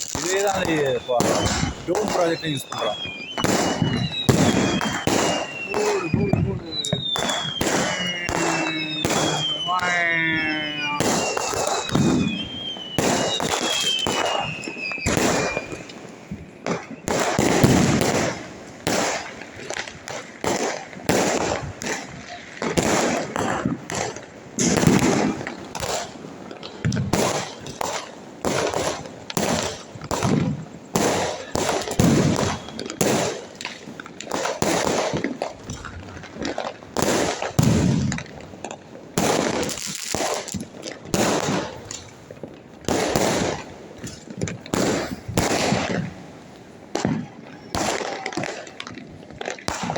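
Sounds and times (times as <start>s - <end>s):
falling firework whistles: 0.0s - 19.4s, 27.2s - 33.4s, 42.9s - 46.1s
firecrackers banging and crackling: 0.0s - 49.9s.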